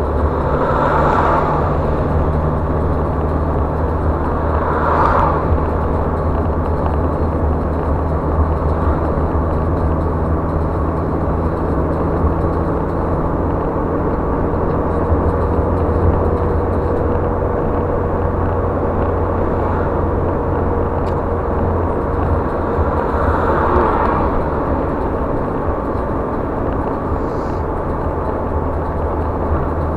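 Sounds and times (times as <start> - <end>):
car engine hum: 0.0 - 29.9.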